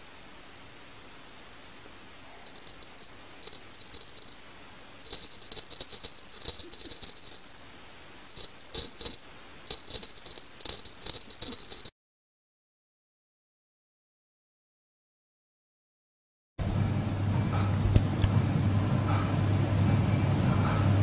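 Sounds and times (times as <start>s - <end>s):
jingling rattle: 2.4s - 7.6s, 8.3s - 11.9s
bell-like tinkle: 5.1s - 7.6s.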